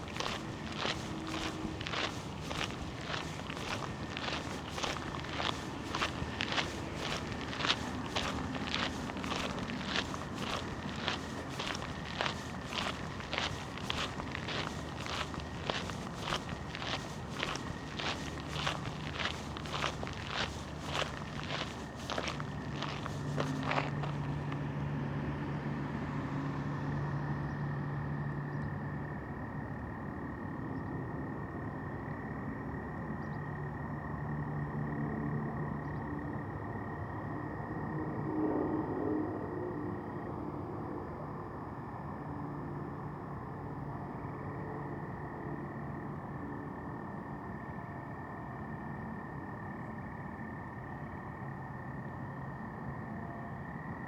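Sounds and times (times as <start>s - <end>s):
frogs calling: 0.0s - 24.6s
distant traffic hum: 0.0s - 38.4s.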